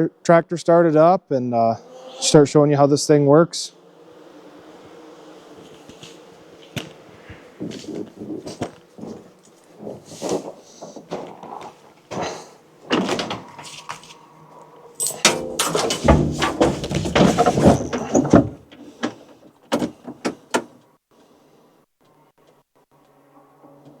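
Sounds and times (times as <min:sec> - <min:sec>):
tractor door and controls clattering: 0:12.1 - 0:14.0, 0:15.0 - 0:20.8
tractor engine cranking: 0:14.9 - 0:20.8.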